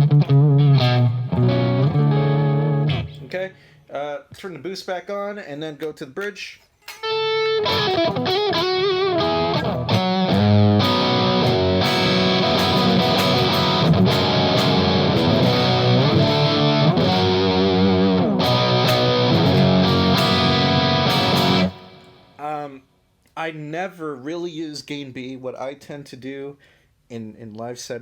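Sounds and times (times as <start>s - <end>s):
distorted electric guitar: 0.0s - 3.3s, 7.0s - 22.4s.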